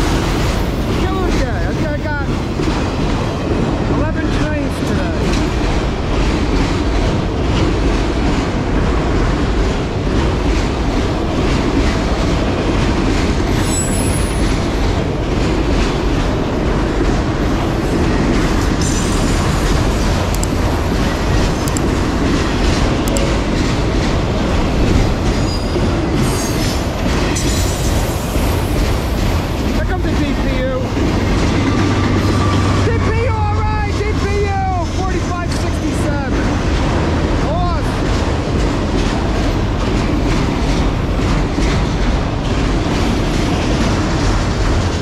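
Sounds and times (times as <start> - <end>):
freight train wheels rumbling: 0.0 - 45.0
high-pitched wheel squeals: 13.6 - 14.4.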